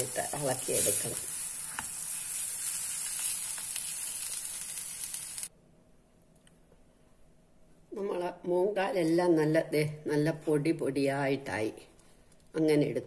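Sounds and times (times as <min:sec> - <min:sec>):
filling sizzling in a pan: 0:00.0 - 0:05.5.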